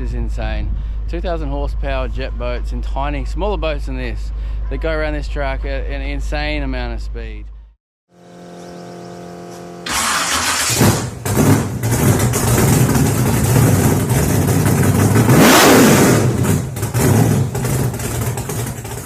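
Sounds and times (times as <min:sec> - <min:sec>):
jet boat engine at high revs: 0:08.4 - 0:19.0.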